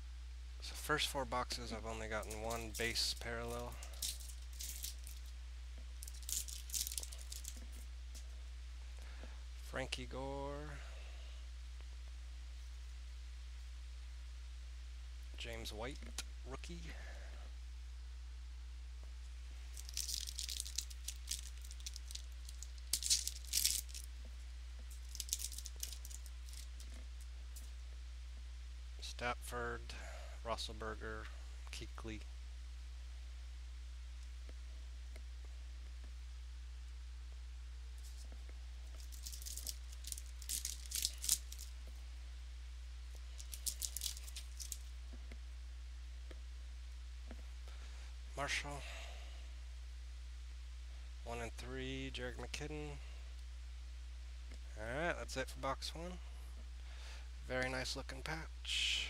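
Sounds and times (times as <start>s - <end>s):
low electrical hum: 0.0s - 59.0s
trading cards rustling and clicking: 2.1s - 5.3s, 6.0s - 8.2s, 19.7s - 24.1s, 24.9s - 27.0s, 38.9s - 41.7s, 43.2s - 44.9s.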